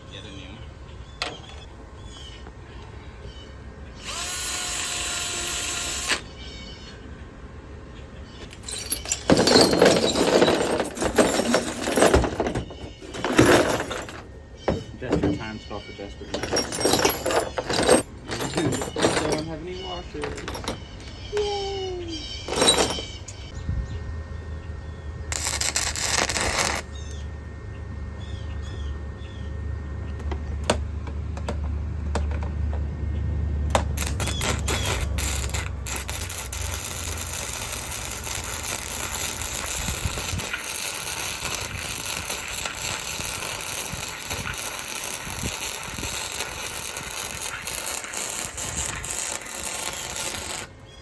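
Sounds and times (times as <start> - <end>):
low hum: 20.2 - 50.6
welding arc crackling: 25.3 - 27.0, 34.0 - 50.8.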